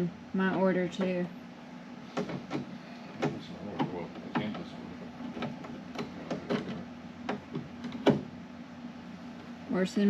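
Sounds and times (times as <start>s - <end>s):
steady low hum: 0.0s - 10.0s
light knocks and clicks: 2.1s - 8.3s.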